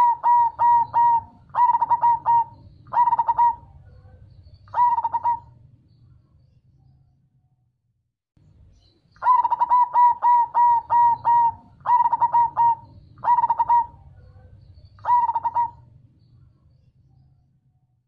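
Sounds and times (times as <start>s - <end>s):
dove cooing: 0.0s - 5.7s, 9.2s - 15.9s.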